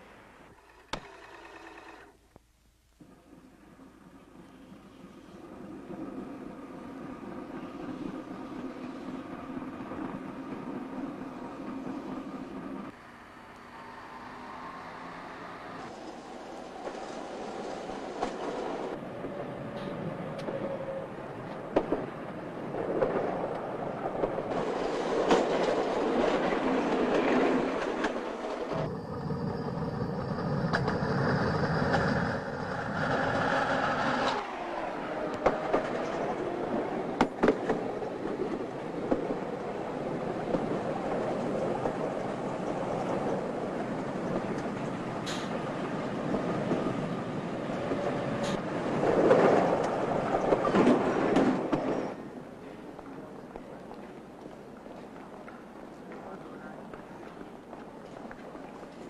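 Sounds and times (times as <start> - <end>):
rail vehicle running on track: 3.0 - 59.0
wheels clacking over rail joints: 21.4 - 59.0.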